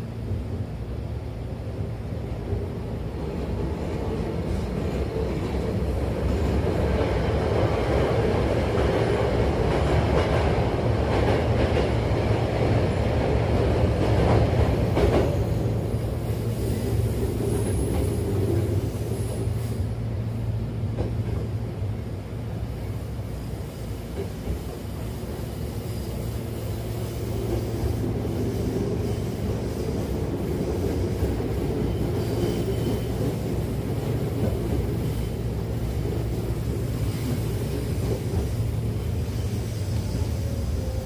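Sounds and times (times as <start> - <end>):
train wheels rumbling on rail: 0.0 - 41.0
faint high wheel squeals: 31.8 - 33.5.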